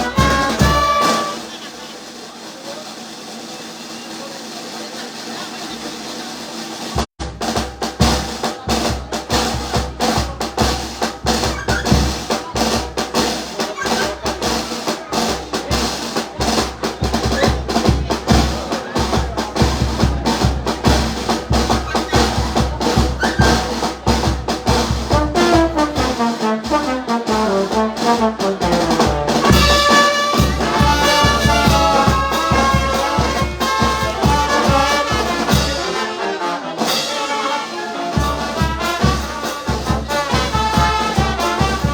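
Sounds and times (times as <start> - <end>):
brass band music: 0.0 - 41.9.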